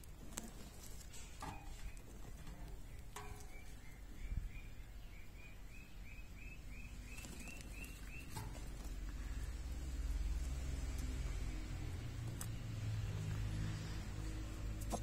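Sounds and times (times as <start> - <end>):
small bird chirping: 0.0 - 9.6.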